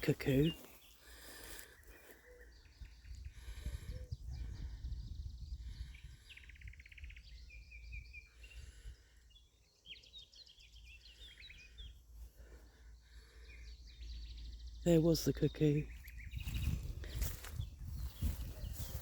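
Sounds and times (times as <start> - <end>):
songbirds chirping and trilling: 0.0 - 19.0
wind rumble on microphone: 2.6 - 8.9, 15.9 - 19.0.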